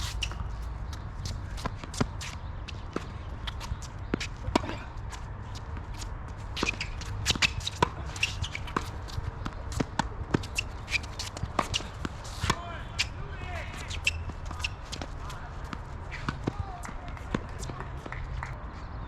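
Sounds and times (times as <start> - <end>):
footsteps and shoe scuffs: 0.0 - 4.4
tennis ball strikes and bounces: 5.6 - 18.6.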